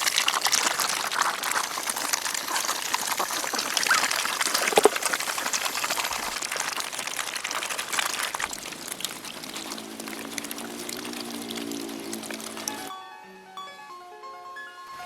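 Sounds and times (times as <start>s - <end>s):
water splashing and trickling: 0.0s - 12.9s
water droplet ticks: 5.6s - 12.9s
quiet music with held notes: 12.7s - 15.0s.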